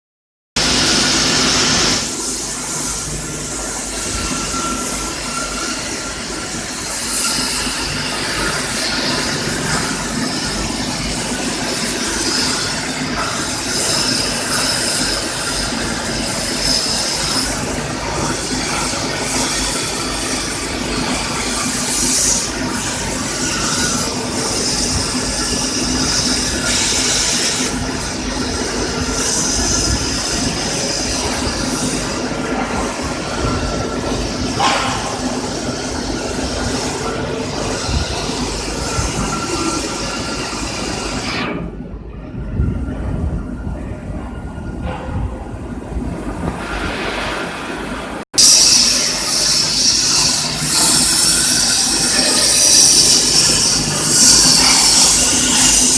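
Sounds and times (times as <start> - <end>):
plasma cutter hissing: 0.6 - 41.6, 48.4 - 55.9.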